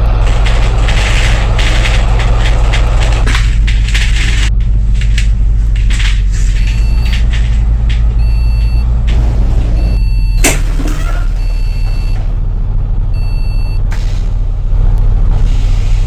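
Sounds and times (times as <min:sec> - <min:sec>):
fittings rattling: 0:00.0 - 0:09.8
bus engine humming: 0:00.0 - 0:16.0.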